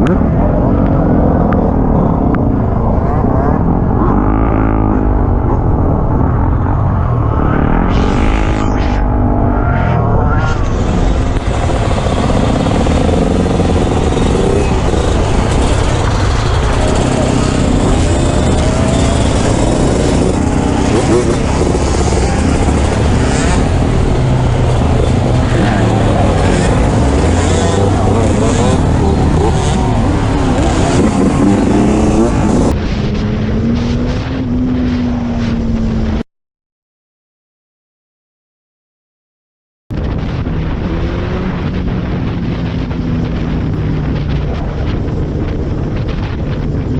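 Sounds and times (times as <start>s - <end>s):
motorcycle engine at speed: 0.0s - 36.2s, 40.0s - 46.9s
rush of wind noise: 0.0s - 36.2s, 39.9s - 46.9s.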